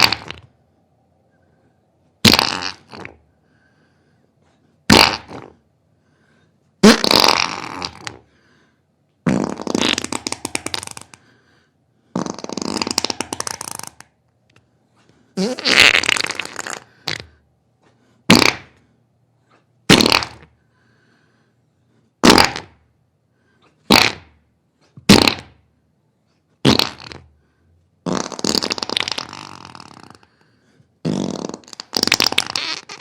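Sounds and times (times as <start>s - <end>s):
farts: 0.0s - 0.5s, 2.2s - 3.2s, 4.9s - 5.6s, 6.8s - 8.2s, 9.2s - 11.2s, 12.1s - 14.1s, 15.4s - 17.4s, 18.3s - 18.8s, 19.9s - 20.6s, 22.2s - 22.8s, 23.8s - 25.6s, 26.6s - 27.3s, 28.0s - 30.4s, 31.0s - 33.0s.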